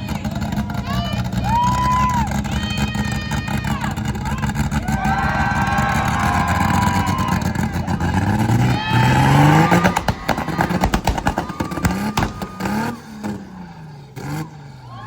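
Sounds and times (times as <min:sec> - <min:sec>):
car engine revving loudly: 0:00.0 - 0:15.0
exhaust cracks and pops: 0:03.4 - 0:14.6.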